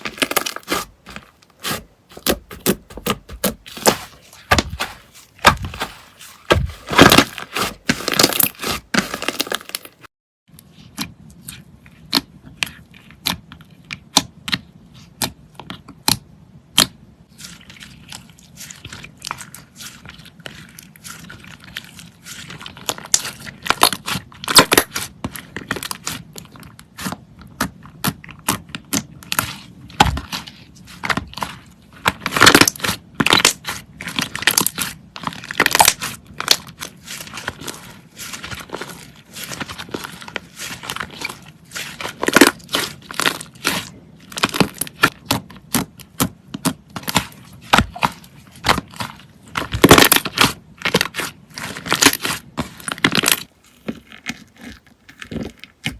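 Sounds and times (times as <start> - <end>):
slime crackling and popping: 0.0 - 10.1.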